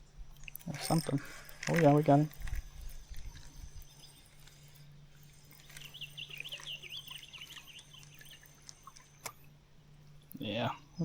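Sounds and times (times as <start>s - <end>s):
faint low hum: 0.0s - 11.0s
songbird warbling: 5.3s - 9.4s.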